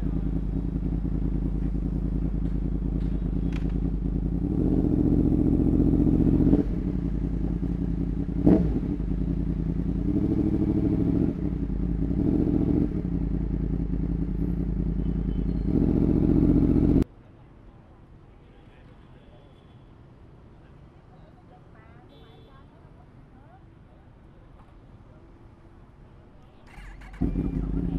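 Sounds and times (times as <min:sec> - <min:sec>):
motorcycle engine revving: 0:00.0 - 0:17.0, 0:26.7 - 0:27.9.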